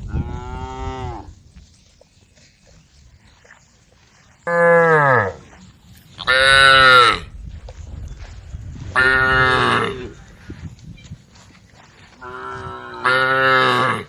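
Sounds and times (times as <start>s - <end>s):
cows mooing: 0.1s - 1.3s, 9.0s - 10.2s, 12.2s - 14.0s.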